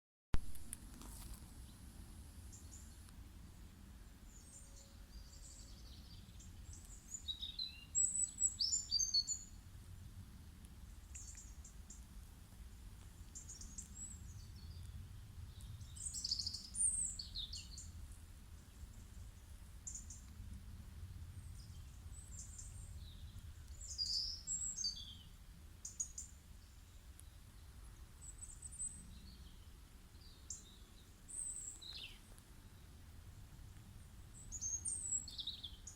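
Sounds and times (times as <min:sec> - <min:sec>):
small birds chirping: 0:01.0 - 0:20.6, 0:21.4 - 0:35.9
low steady rumble: 0:17.7 - 0:23.9.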